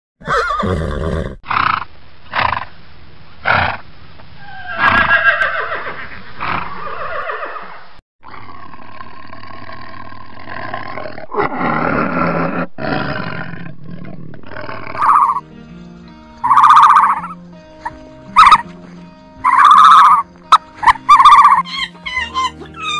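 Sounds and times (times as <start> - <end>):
horses whinnying: 0.2 - 1.4, 4.4 - 7.8, 15.0 - 15.4, 16.4 - 17.4, 18.4 - 18.7, 19.4 - 22.9
tiger roaring: 8.2 - 15.4
music: 15.0 - 22.9.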